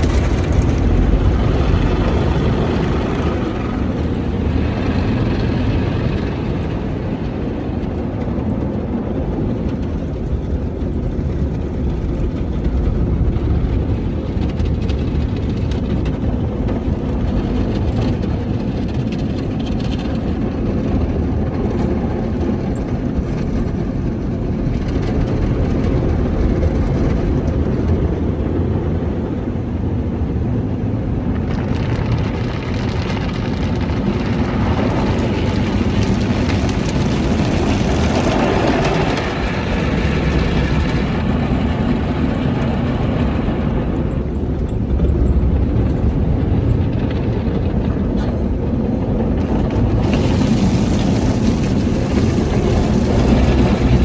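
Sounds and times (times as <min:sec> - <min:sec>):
car wash low rumble: 0:00.0 - 0:54.0.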